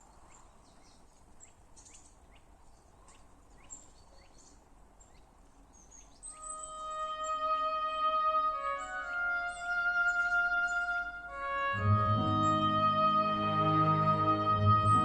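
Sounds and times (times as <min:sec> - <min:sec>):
small birds chirping: 0:00.0 - 0:15.0
music with long held notes: 0:06.4 - 0:15.0.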